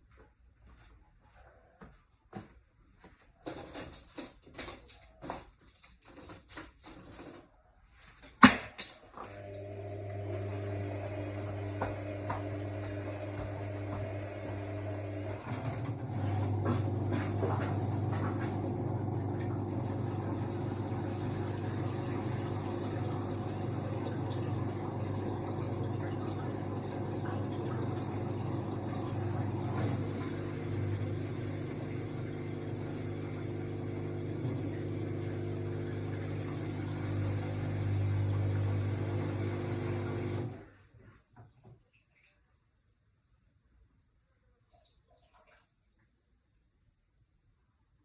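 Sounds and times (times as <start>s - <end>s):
washing machine motor hum: 9.2s - 41.2s.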